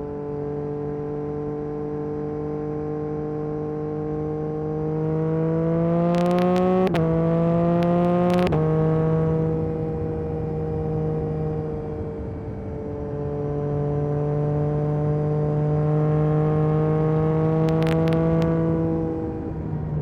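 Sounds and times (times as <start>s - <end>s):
motorcycle engine revving: 4.6s - 11.1s, 14.5s - 19.5s
exhaust crackles: 6.1s - 7.1s, 7.8s - 8.6s, 17.6s - 18.5s.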